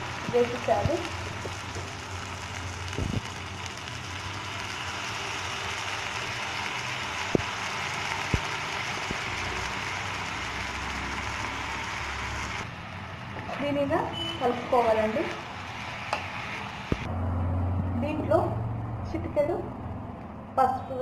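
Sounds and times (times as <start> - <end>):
rice sizzling in oil: 0.0 - 13.3, 14.4 - 17.1.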